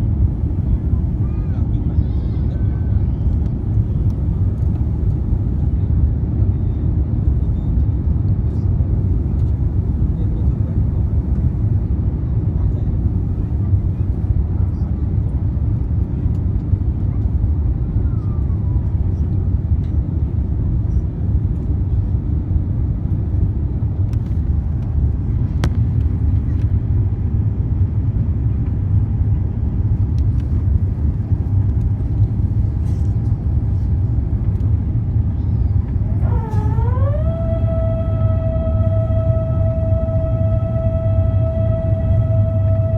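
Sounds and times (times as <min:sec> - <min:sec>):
airplane cabin rumble: 0:00.0 - 0:42.9
swooping pitched tone: 0:36.2 - 0:42.9.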